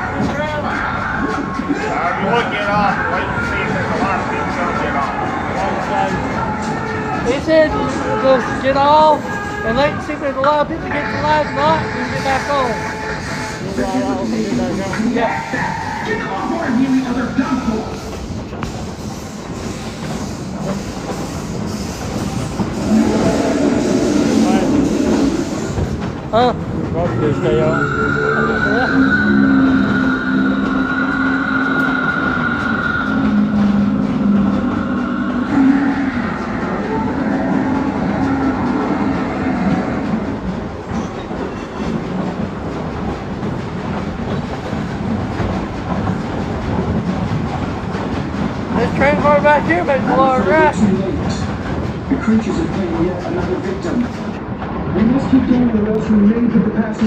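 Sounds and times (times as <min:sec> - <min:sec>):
train rumbling on rails: 0:00.0 - 0:57.0
train wheels clacking: 0:00.0 - 0:57.0.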